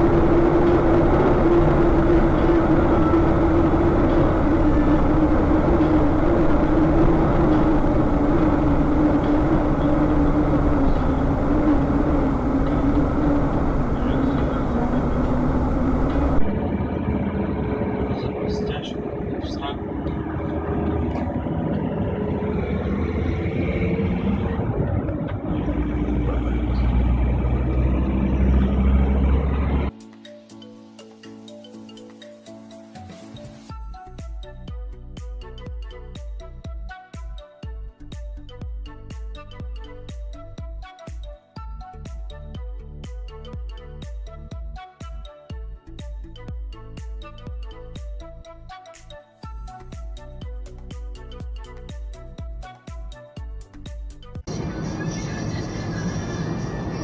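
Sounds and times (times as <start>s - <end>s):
vehicle engine droning: 0.0s - 29.9s, 54.3s - 57.0s
low road rumble: 0.0s - 30.0s, 37.7s - 41.0s, 53.5s - 57.0s.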